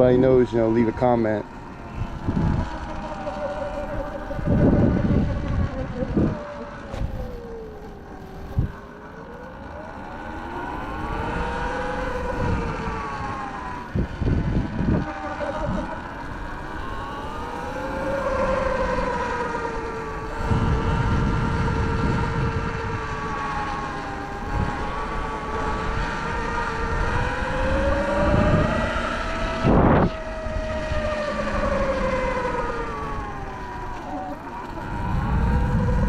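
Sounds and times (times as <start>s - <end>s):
electric motor and belt whining: 0.0s - 36.0s
wind rumble on microphone: 0.0s - 36.0s.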